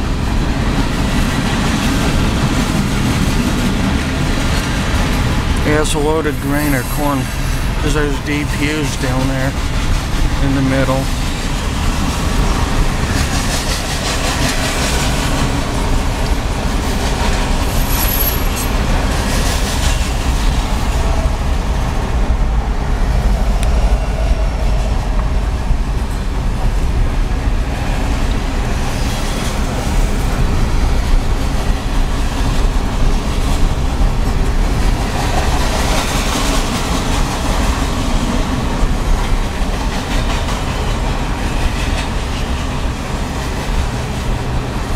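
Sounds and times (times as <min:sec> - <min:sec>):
wheels clacking over rail joints: 0:00.0 - 0:08.2, 0:11.0 - 0:44.9
freight train rumbling past: 0:00.0 - 0:44.9
high wheel squeal: 0:17.7 - 0:18.8.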